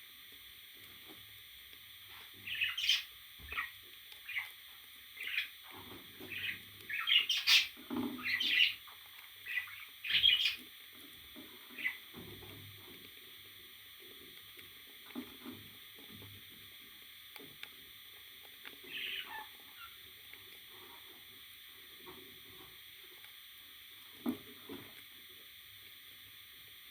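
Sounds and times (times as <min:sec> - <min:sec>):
parrot chirping and squawking: 0:02.4 - 0:04.6, 0:05.2 - 0:05.6, 0:06.2 - 0:08.8, 0:09.4 - 0:10.6, 0:11.8 - 0:12.0, 0:18.9 - 0:20.0.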